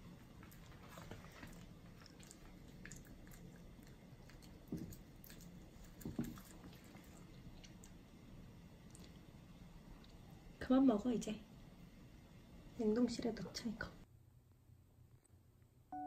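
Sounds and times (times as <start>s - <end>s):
person chewing rice cake: 0.2s - 8.0s.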